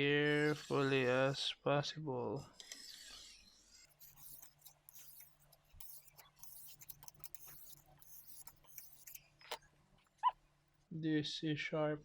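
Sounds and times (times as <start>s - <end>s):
hone scraping knife edge: 2.6s - 9.3s.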